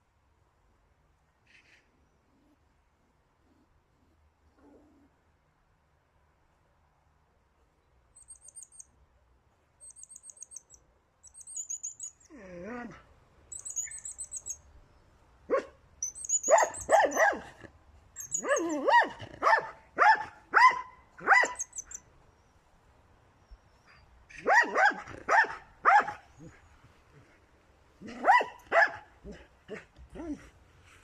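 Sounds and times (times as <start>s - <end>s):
high chirping trills: 8.2s - 8.9s, 9.8s - 12.3s, 13.5s - 14.8s, 16.0s - 17.4s, 18.2s - 18.8s, 21.4s - 22.0s
dog whining: 11.4s - 14.6s, 16.0s - 19.3s
dog barking: 15.5s - 15.8s, 16.4s - 21.9s, 24.3s - 26.6s, 28.0s - 30.4s.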